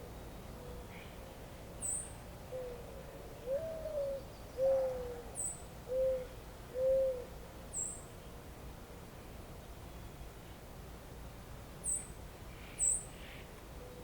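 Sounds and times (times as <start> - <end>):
bird hooting: 3.4 - 7.3.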